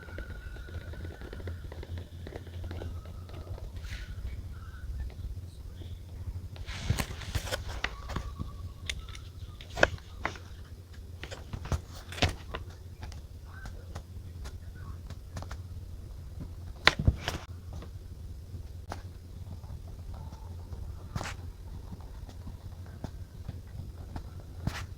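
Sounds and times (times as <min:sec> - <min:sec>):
low steady hum: 0:00.0 - 0:24.9
paper rustling: 0:06.5 - 0:15.7, 0:20.1 - 0:24.9.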